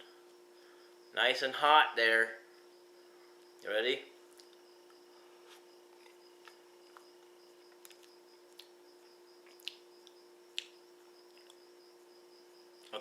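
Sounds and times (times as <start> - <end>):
faint hum: 0.0 - 13.0
mouth clicks and smacks: 7.7 - 8.8, 9.4 - 11.6.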